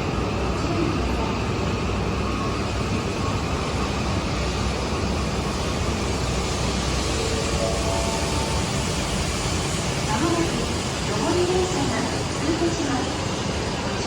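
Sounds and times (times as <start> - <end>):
escalator running: 6.2 - 12.0.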